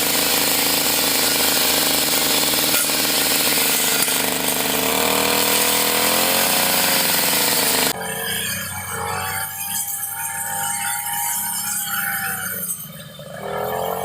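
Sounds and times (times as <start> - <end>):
brush cutter engine running: 0.0 - 8.1, 13.2 - 14.0.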